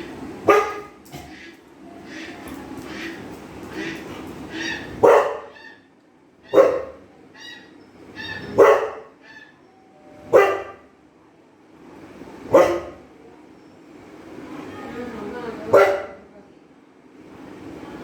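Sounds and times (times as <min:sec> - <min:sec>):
dog barking: 0:00.4 - 0:01.0, 0:04.5 - 0:05.7, 0:06.5 - 0:07.1, 0:08.4 - 0:09.2, 0:10.2 - 0:10.9, 0:12.5 - 0:13.1, 0:15.7 - 0:16.3
high-pitched dog calls: 0:03.8 - 0:10.8.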